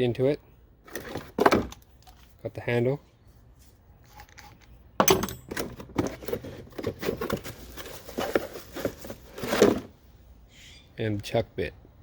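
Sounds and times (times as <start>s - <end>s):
packaging rustling: 6.0s - 9.8s.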